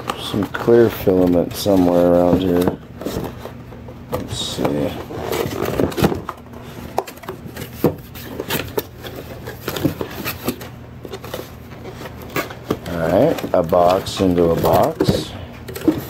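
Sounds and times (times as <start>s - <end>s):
cardboard boxes being rummaged: 0.0s - 3.6s, 4.2s - 16.0s.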